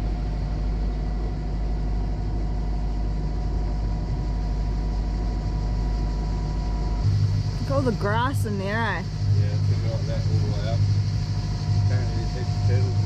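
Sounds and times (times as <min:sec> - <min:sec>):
boat engine droning: 0:00.0 - 0:13.0
faint steady hum: 0:00.0 - 0:13.0.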